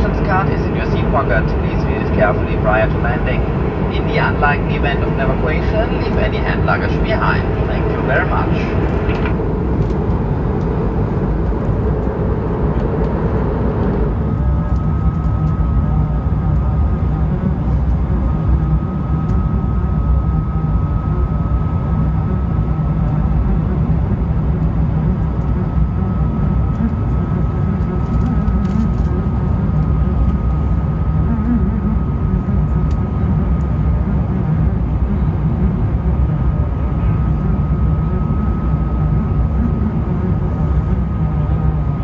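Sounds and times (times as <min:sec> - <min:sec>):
airliner cabin engine rumble: 0:00.0 - 0:42.0.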